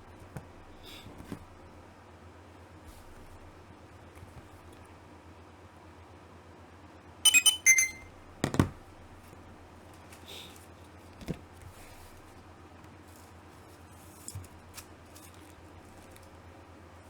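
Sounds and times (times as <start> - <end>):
ringing chime-like tones: 7.3 - 8.1.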